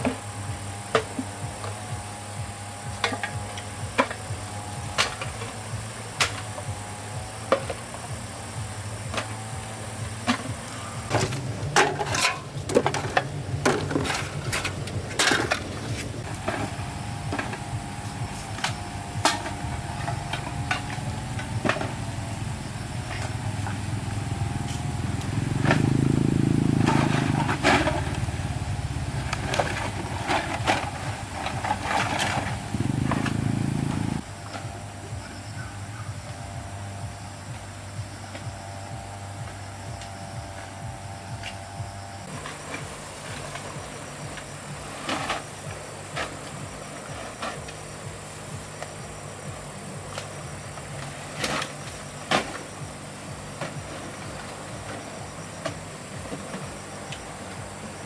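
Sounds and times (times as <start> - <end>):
small engine running: 0.0 - 58.0
objects knocking and clattering: 10.2 - 26.0.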